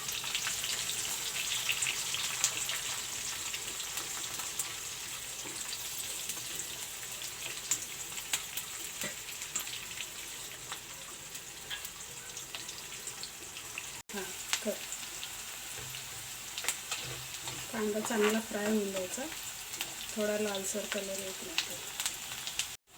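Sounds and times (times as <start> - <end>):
onion sizzling in hot oil: 0.0 - 22.9.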